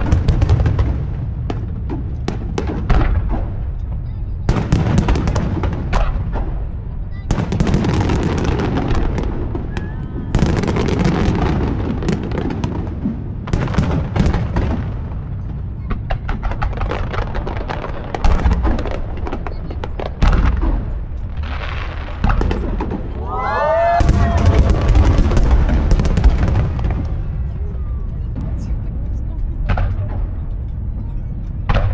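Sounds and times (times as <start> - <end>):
fireworks booming bursts: 0.0 - 28.9
fireworks crackling: 4.5 - 28.9.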